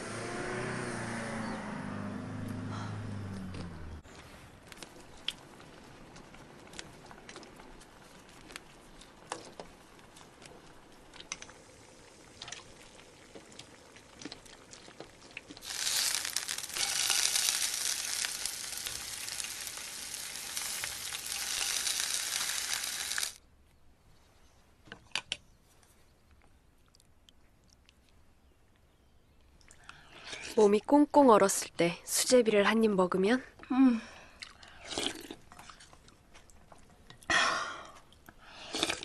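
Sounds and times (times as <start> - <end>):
leaf sizzling in oil: 11.2 - 23.4.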